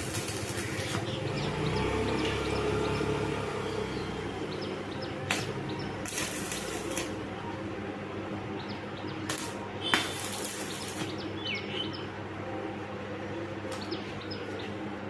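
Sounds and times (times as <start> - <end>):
small birds chirping: 0.1 - 7.2, 8.5 - 12.1.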